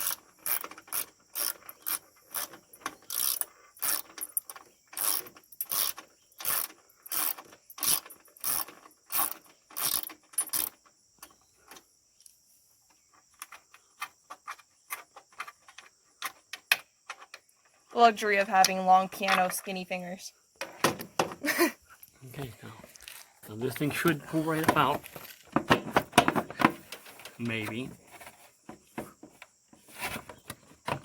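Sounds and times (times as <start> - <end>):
socket ratchet clicking: 0.0 - 10.7.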